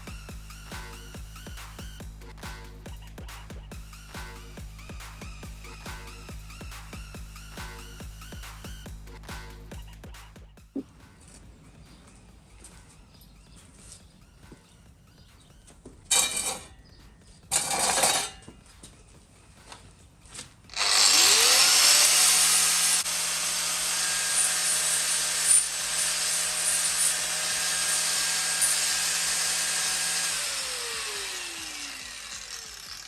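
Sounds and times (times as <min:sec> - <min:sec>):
angle grinder grinding sheet metal: 0:16.1 - 0:16.8, 0:17.5 - 0:18.5, 0:20.7 - 0:33.0.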